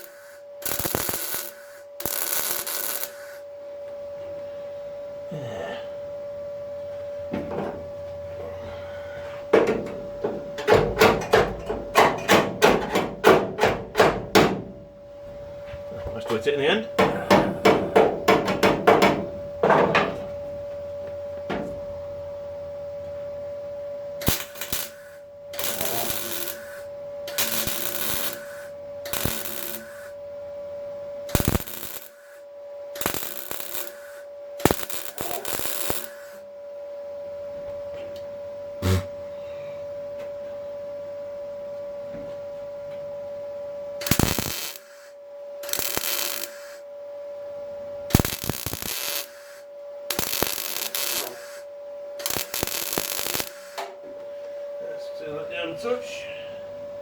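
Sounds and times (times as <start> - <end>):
welding bursts: 0.0 - 3.4, 24.2 - 30.2, 31.3 - 32.4, 33.0 - 36.4, 44.0 - 46.8, 48.1 - 53.9
steady hum: 0.0 - 57.0
hammer on sheet steel: 17.0 - 19.2.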